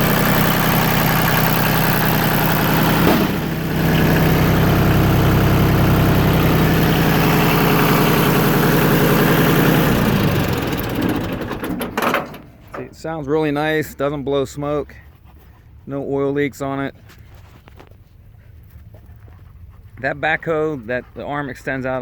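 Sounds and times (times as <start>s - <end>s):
tractor diesel engine idling: 0.0s - 14.5s.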